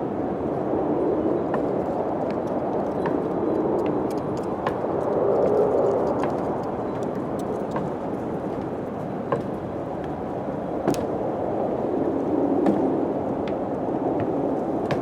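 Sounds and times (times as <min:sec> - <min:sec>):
wind rushing: 0:00.0 - 0:15.0.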